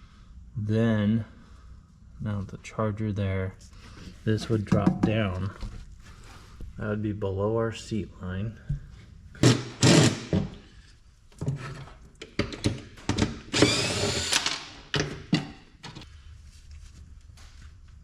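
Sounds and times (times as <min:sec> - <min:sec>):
power drill whirring: 0:09.4 - 0:10.4, 0:13.5 - 0:14.8
knocks and clunks of parts: 0:11.3 - 0:16.1.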